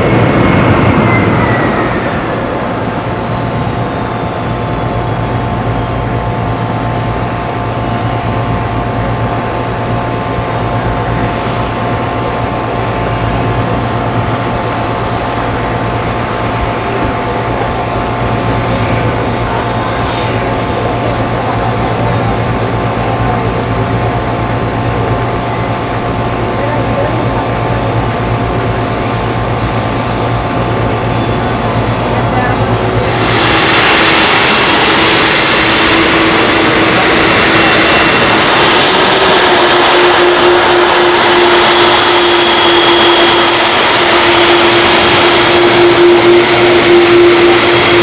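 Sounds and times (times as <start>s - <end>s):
jet engines idling: 0.0s - 48.0s.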